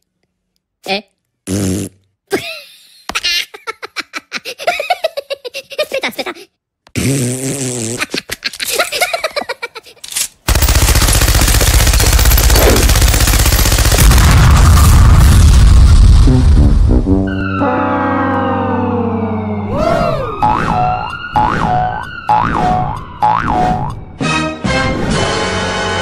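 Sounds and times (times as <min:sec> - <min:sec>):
squeaky cartoon voice laughing: 0:02.4 - 0:06.5, 0:07.9 - 0:10.2
machine-gun fire sound effect: 0:10.5 - 0:15.0.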